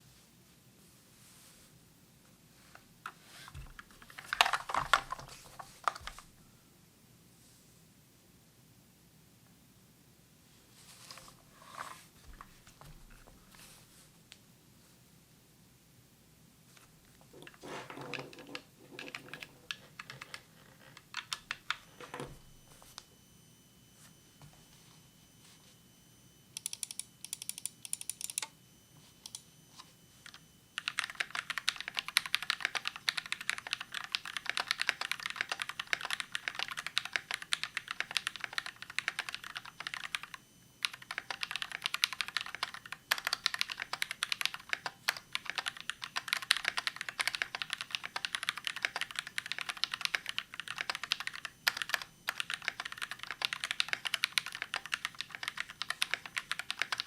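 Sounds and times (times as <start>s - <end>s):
typing on a mechanical keyboard: 3.7s - 6.2s, 17.4s - 22.1s, 26.6s - 28.5s, 30.8s - 57.0s.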